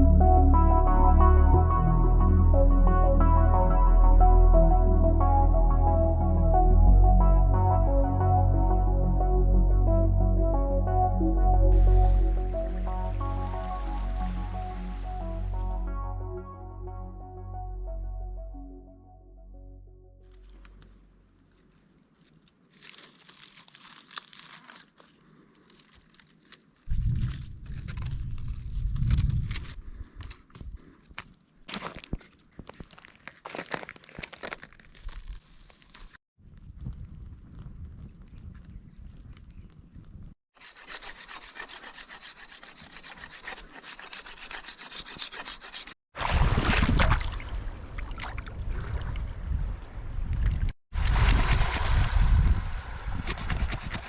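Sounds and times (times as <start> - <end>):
crunching and crackling: 20.3 - 40.3
wind rumble on microphone: 26.9 - 30.8, 36.4 - 40.4, 46.3 - 54.0
blade rasping on wood: 40.6 - 46.0, 51.0 - 52.3, 53.2 - 54.0.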